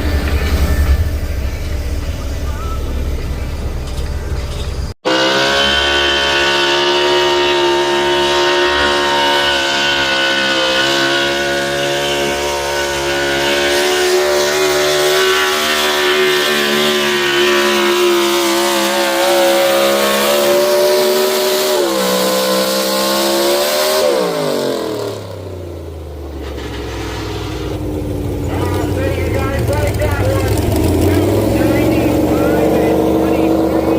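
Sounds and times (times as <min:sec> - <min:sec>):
truck engine at high revs: 0:00.0 - 0:33.9.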